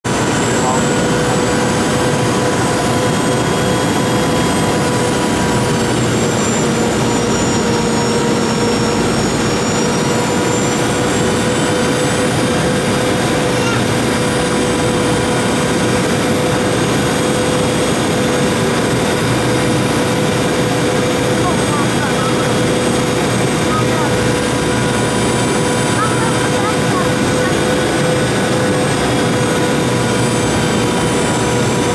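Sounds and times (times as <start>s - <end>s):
faint high engine whine: 0.1s - 31.9s
jet airliner cabin noise: 0.1s - 31.9s.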